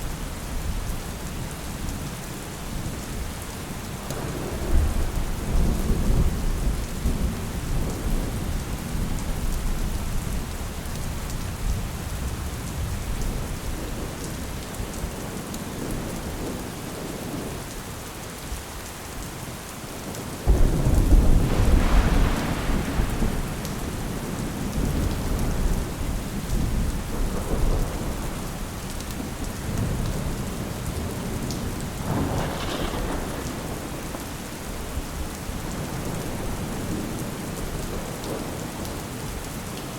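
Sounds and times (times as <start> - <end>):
steady rain: 0.0 - 39.9
thunder rumbling: 4.1 - 10.4, 20.4 - 39.4.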